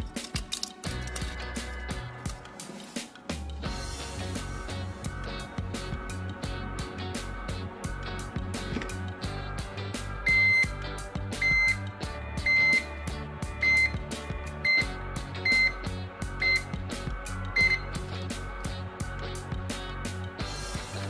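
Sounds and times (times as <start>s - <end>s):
background music with steady beat: 0.0s - 21.0s
air conditioner beeps: 10.2s - 13.0s, 13.6s - 16.8s, 17.5s - 18.0s.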